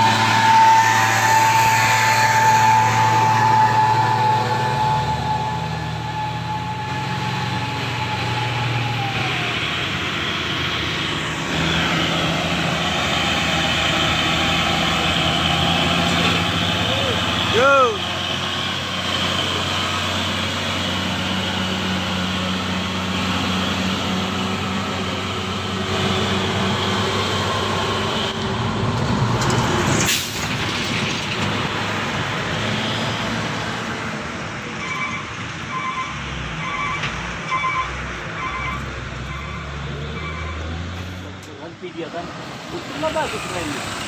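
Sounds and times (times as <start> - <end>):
diesel truck engines under load: 0.0 - 44.0
air brakes hissing: 30.0 - 30.6.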